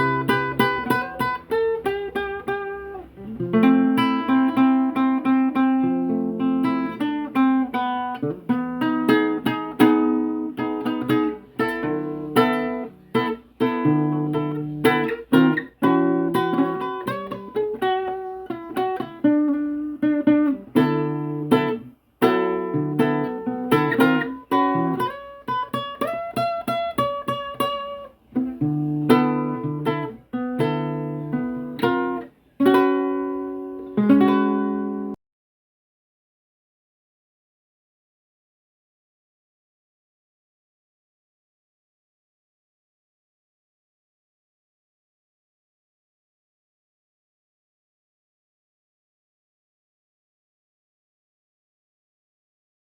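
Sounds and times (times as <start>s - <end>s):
acoustic guitar improvisation: 0.0s - 35.2s.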